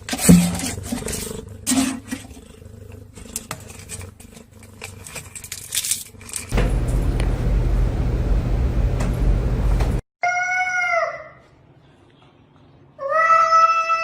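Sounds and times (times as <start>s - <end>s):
cat growling: 0.6s - 5.4s
steady low hum: 6.5s - 10.0s.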